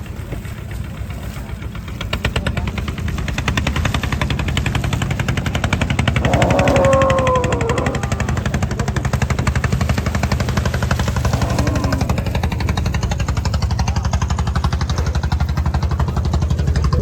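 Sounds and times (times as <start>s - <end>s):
engine chugging: 0.0s - 17.0s
cow mooing: 6.2s - 8.6s, 11.2s - 12.5s.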